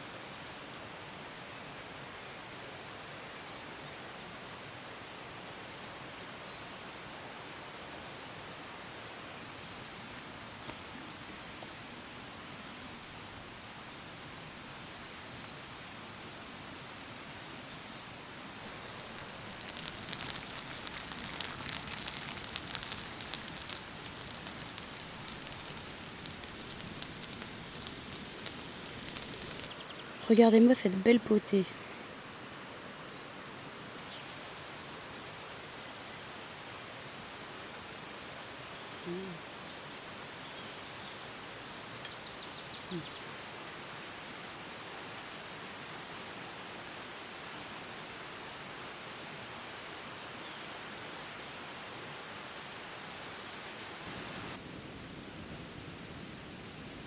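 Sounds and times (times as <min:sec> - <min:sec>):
steady hiss: 0:00.0 - 0:57.0
campfire pops and snaps: 0:18.6 - 0:29.7
faint high ticks: 0:18.6 - 0:29.7
low voice-like sounds: 0:39.0 - 0:39.4.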